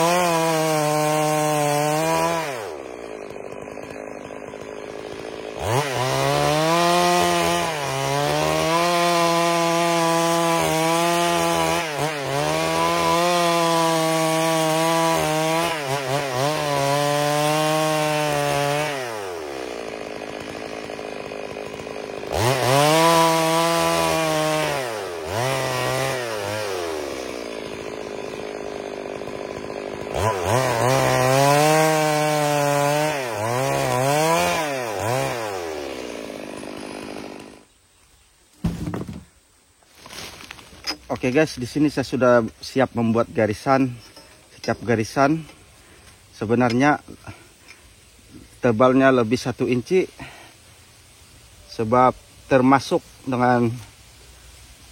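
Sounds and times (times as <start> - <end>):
chainsaw cutting log: 0.0 - 37.8, 38.6 - 54.9.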